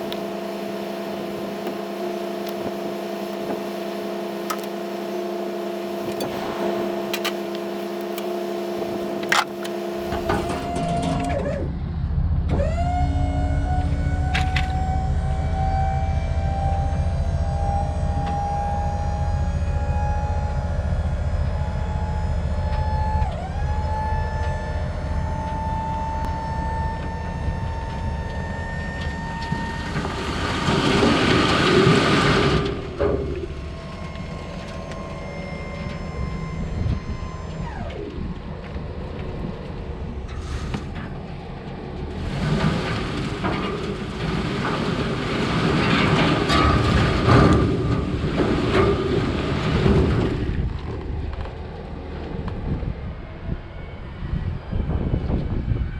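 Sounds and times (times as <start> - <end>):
vehicle engine running: 0.0 - 55.7
loud rushing noise: 6.0 - 9.3.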